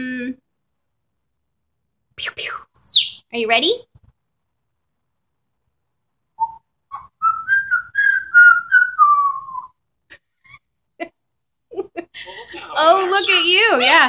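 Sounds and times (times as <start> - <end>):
parrot whistling: 2.2 - 3.2, 6.4 - 9.8.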